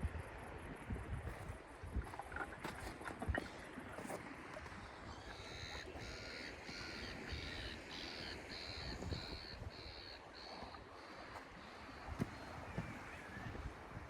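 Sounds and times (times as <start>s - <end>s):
low wind rumble: 0.0s - 10.2s
bird calling: 4.7s - 13.7s.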